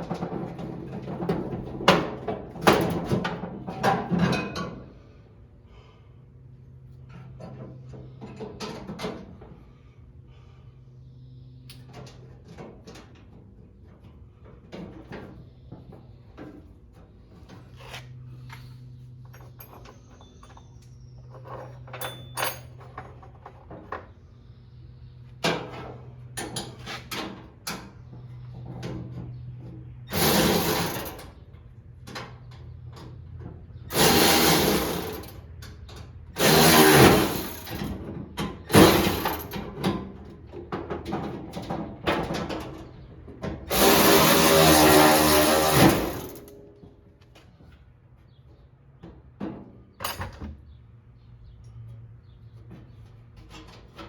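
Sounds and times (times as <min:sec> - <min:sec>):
loud tool bursts: 0:30.1 - 0:31.2, 0:33.9 - 0:35.3, 0:36.4 - 0:37.9, 0:38.7 - 0:39.6, 0:43.7 - 0:46.5.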